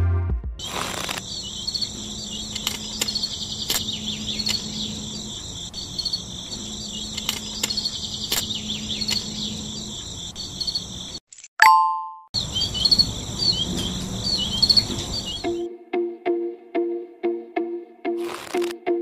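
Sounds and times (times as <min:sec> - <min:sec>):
insects chirping: 0:00.6 - 0:11.2, 0:12.4 - 0:15.6.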